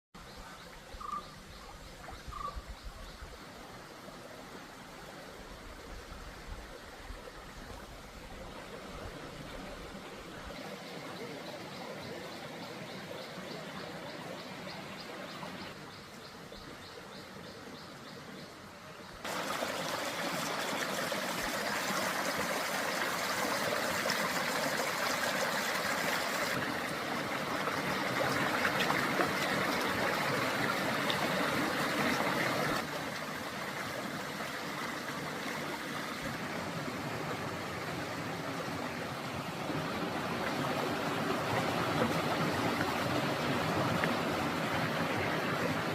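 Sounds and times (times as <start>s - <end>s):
river water rushing: 18.6s - 45.9s.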